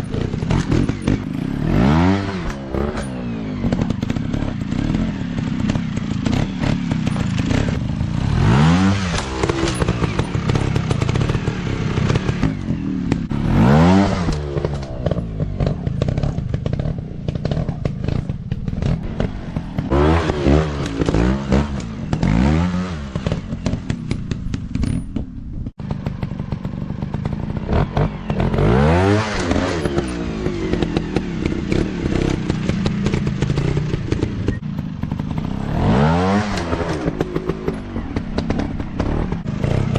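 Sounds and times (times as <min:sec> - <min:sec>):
dirt bike engines revving: 0:00.0 - 0:24.8, 0:25.8 - 0:39.9
clattering and scraping: 0:02.3 - 0:08.2.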